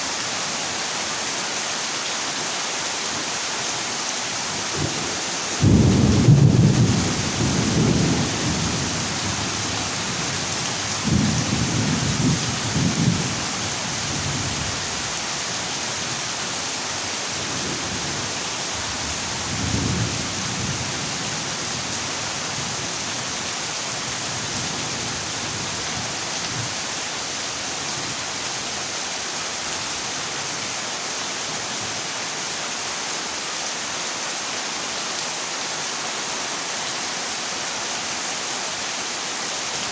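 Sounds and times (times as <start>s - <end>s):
heavy rain on a metal roof: 0.0s - 39.9s
thunder rumbling: 5.6s - 10.3s.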